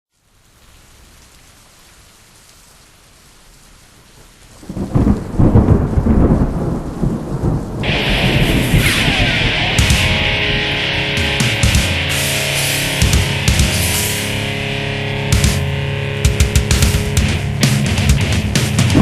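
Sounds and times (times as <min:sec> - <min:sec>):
rain hiss: 0:00.1 - 0:19.0
rolling thunder: 0:04.6 - 0:11.8, 0:16.9 - 0:19.0.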